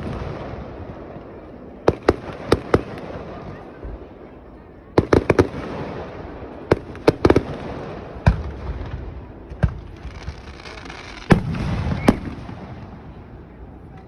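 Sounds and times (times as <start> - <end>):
fireworks bangs: 0.0 - 4.2, 4.9 - 13.6
fireworks crackling hiss: 5.0 - 13.4.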